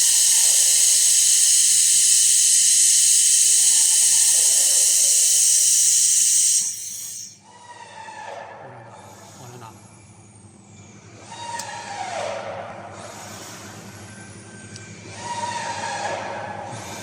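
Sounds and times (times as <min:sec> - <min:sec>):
high-pitched falling whine: 0:00.0 - 0:07.4
welding machine hissing: 0:00.0 - 0:07.4.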